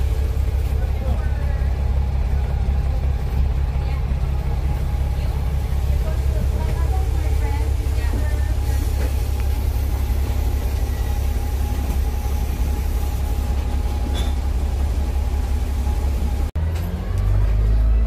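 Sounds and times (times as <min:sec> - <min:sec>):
different low rumble: 0:00.0 - 0:18.0
vehicle engine rumble: 0:00.0 - 0:18.0.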